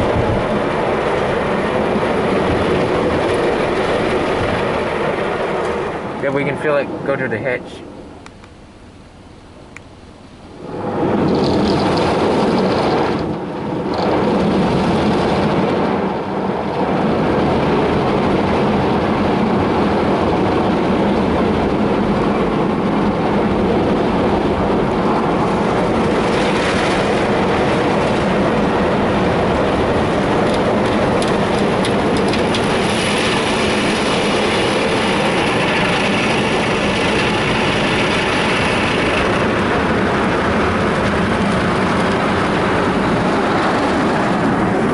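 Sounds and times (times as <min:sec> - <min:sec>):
car wash brushes spinning: 0:21.0 - 0:44.9.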